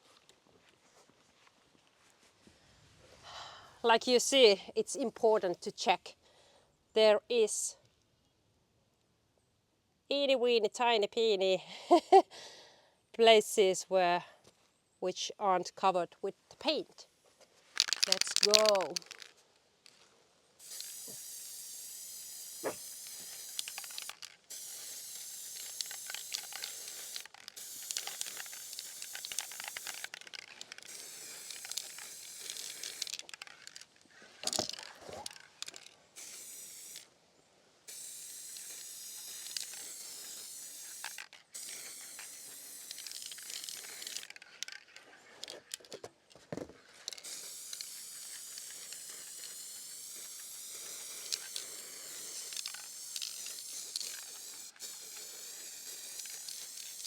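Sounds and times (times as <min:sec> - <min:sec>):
sharp clicks: 0:17.8 - 0:19.3
spray paint can hissing: 0:17.8 - 0:19.3, 0:20.6 - 0:37.1, 0:37.9 - 0:44.8, 0:47.1 - 0:57.0.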